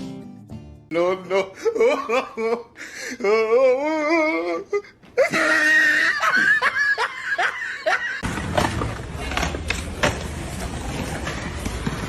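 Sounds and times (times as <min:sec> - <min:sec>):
laughter bursts: 0:05.2 - 0:08.2.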